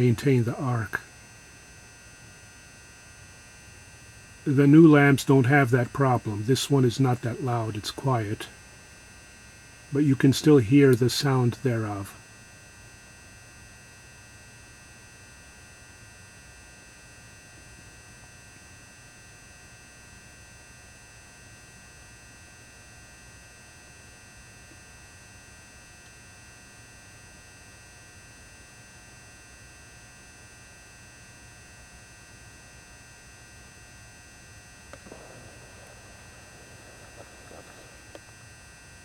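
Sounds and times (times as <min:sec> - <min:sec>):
lamp ballast hum: 0:00.0 - 0:14.8, 0:32.0 - 0:39.0.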